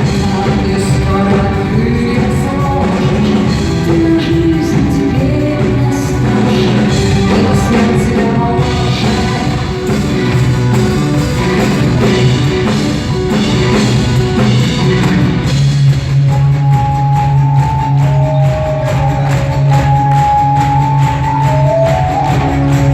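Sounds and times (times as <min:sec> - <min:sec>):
person singing: 0:00.0 - 0:14.0
drum kit beat: 0:00.0 - 0:22.9
rock band playing live: 0:00.0 - 0:22.9.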